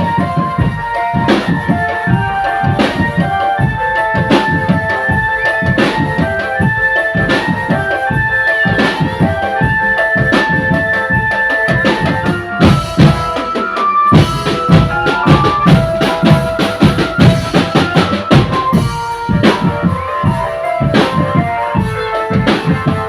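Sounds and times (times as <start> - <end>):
electronic keyboard melody: 0.0 - 23.0
fast drum strokes: 0.0 - 23.0.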